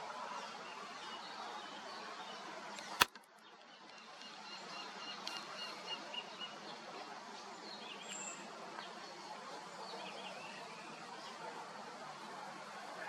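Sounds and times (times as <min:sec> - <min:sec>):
faint outdoor background: 0:00.0 - 0:13.0
sharp click: 0:02.8 - 0:03.3.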